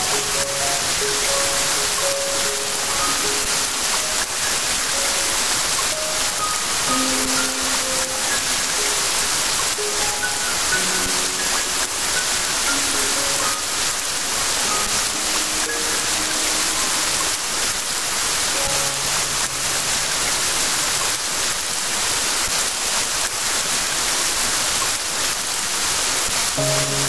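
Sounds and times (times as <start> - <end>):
soft held musical notes: 0.0 - 21.0, 26.6 - 27.0
steady rain hiss: 0.0 - 27.0.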